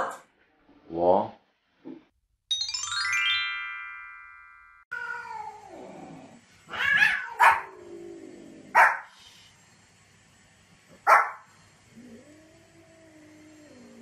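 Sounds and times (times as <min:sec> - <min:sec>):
ringing chime: 0:02.5 - 0:04.9
small dog barking: 0:06.8 - 0:07.8, 0:08.7 - 0:09.1, 0:11.0 - 0:11.5.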